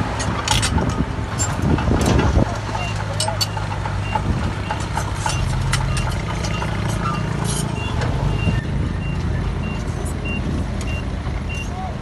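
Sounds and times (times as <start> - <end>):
metal and rock clanks: 0.0 - 8.4
diesel machinery running: 0.0 - 12.0
reversing alarm beeping: 2.8 - 11.7.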